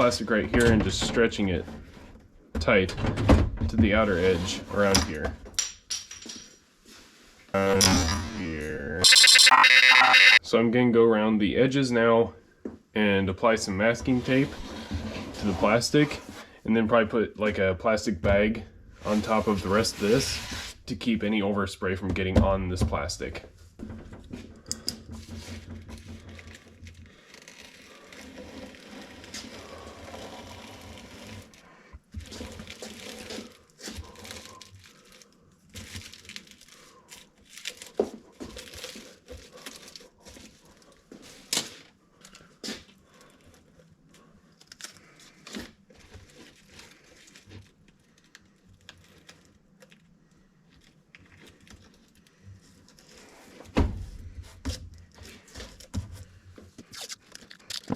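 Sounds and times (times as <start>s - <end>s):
tape crinkling: 32.5s - 41.0s
masking tape tearing: 56.9s - 57.9s.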